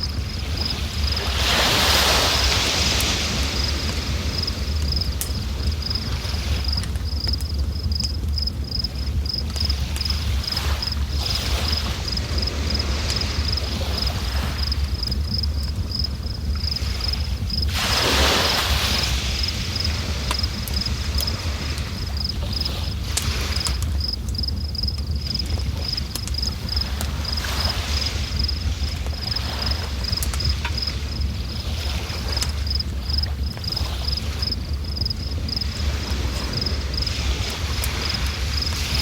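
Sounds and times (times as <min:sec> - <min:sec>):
river water rushing: 0:00.0 - 0:05.1
insect chirping: 0:00.0 - 0:39.0
wind rumble on microphone: 0:00.0 - 0:39.0.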